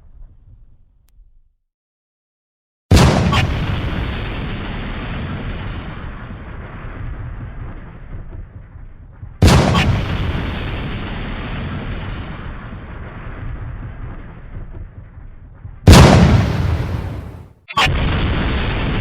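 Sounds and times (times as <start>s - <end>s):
loud booms with rumble: 2.9s - 19.0s
steady low rumble: 3.0s - 17.5s.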